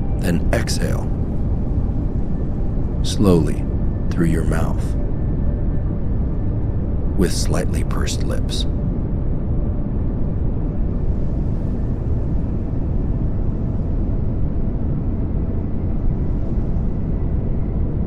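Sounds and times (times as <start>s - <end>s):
pink noise hiss: 0.0s - 5.1s, 7.1s - 8.7s.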